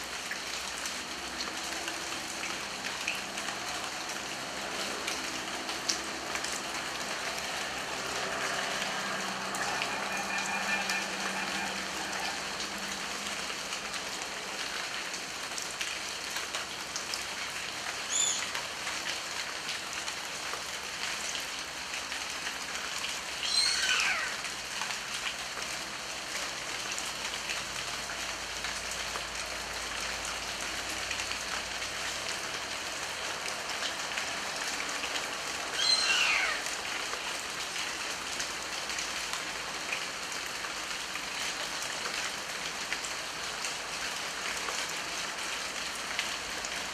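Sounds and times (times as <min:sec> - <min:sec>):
rain falling: 0:00.0 - 0:46.9
bird calling: 0:35.8 - 0:36.6.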